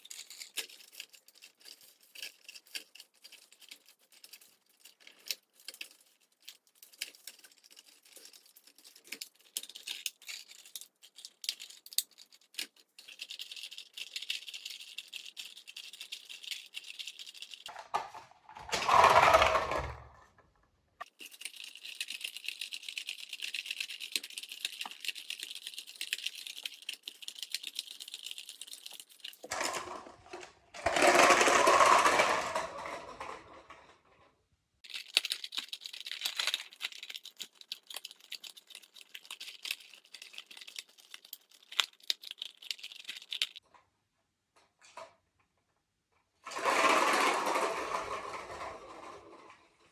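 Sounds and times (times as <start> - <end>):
toy propeller whirring: 0.0 - 17.8, 18.7 - 20.1, 21.0 - 30.0, 34.8 - 43.6.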